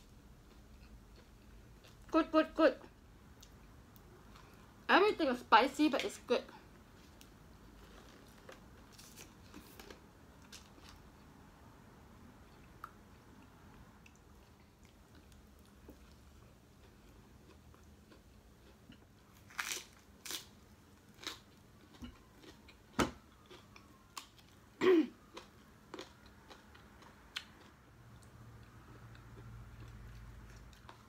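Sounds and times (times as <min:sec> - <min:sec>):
chewing crunches: 0:12.5 - 0:24.6, 0:25.2 - 0:31.0.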